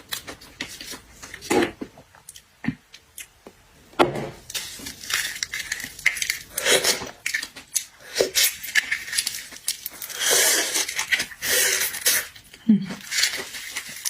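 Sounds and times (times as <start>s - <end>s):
wet chewing and slurping: 4.5s - 14.0s.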